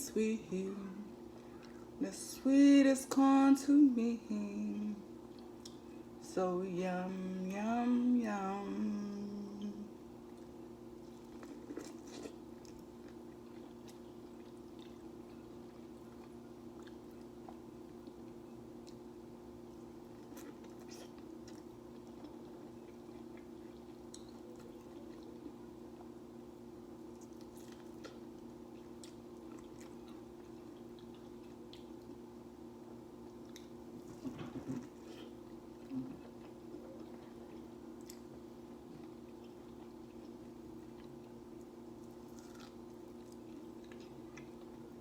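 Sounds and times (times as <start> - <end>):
steady low hum: 0.0 - 45.0
chewing and biting corn: 10.3 - 19.1, 19.7 - 26.2, 33.3 - 45.0.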